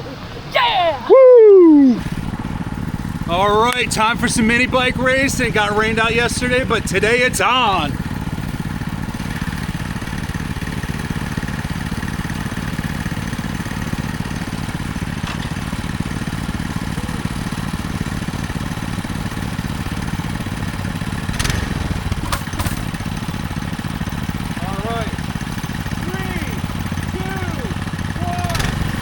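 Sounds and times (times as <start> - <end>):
minibike engine running: 1.8 - 29.0.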